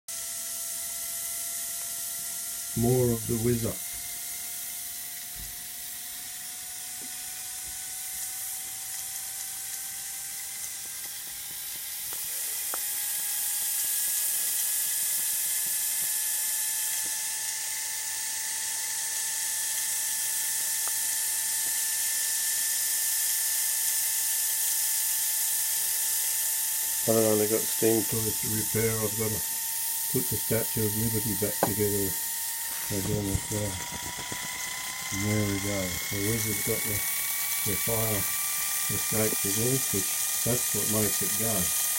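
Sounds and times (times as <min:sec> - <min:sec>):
toy steam engine hissing and whining: 0:00.1 - 0:41.9.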